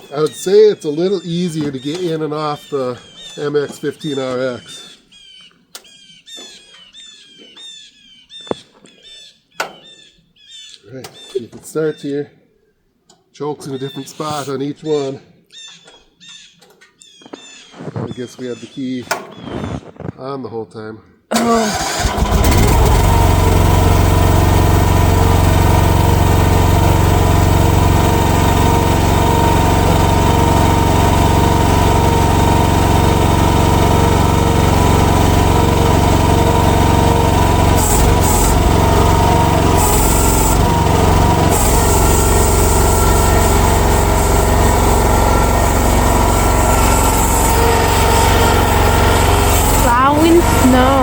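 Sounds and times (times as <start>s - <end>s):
small gasoline engine running: 21.3s - 51.0s.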